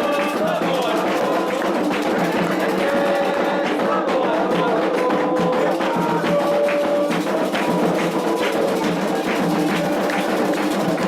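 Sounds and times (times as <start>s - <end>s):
hand drums and percussion: 0.0s - 11.0s
voices singing long notes: 0.0s - 11.0s.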